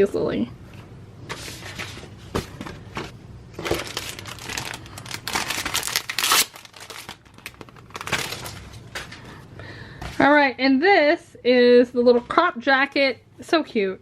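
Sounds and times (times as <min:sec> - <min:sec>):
packaging crinkling: 0:03.6 - 0:09.2.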